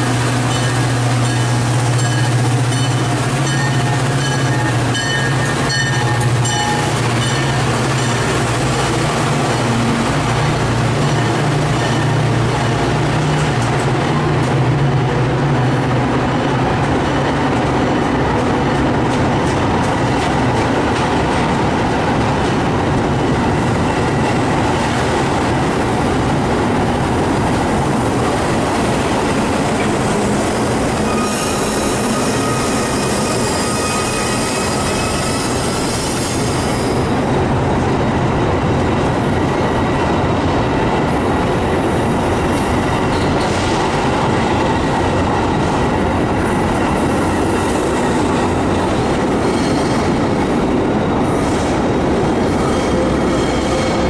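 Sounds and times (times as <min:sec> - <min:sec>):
train wheels rumbling on rail: 0:00.0 - 0:54.0
high wheel squeal: 0:30.9 - 0:37.0, 0:49.4 - 0:50.2.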